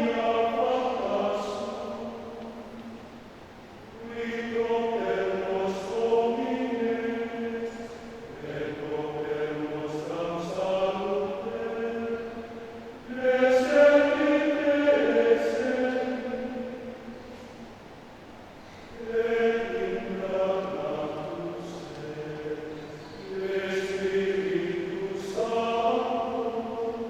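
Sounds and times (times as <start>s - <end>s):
men's choir singing chords: 0.0s - 17.6s, 18.7s - 27.0s.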